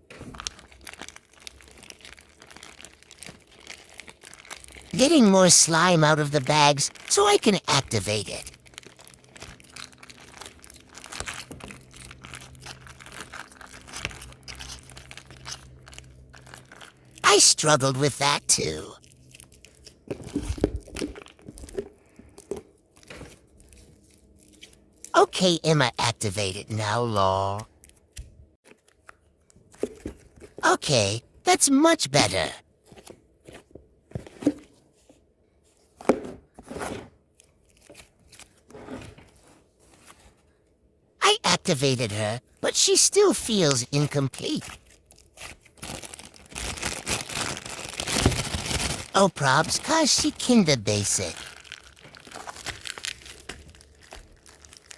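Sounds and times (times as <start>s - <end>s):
plastic bags crinkling: 0.3s - 4.9s, 8.5s - 17.2s, 44.7s - 49.1s, 51.4s - 54.9s.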